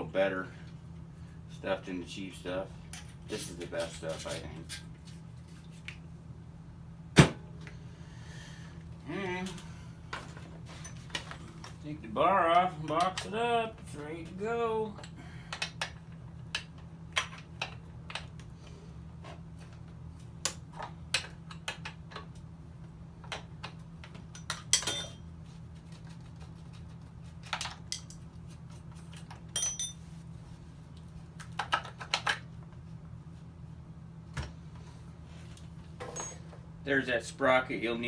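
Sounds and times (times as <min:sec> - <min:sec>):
metallic clicks and clinks: 0:29.6 - 0:30.0.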